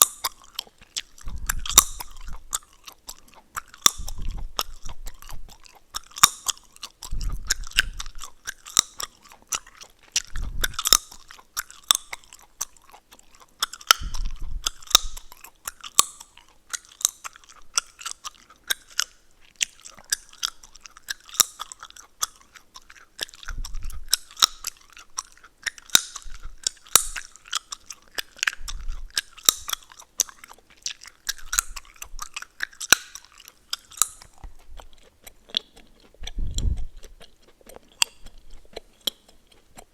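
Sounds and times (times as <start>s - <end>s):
gum chewing clicks and snaps: 0.0s - 39.9s.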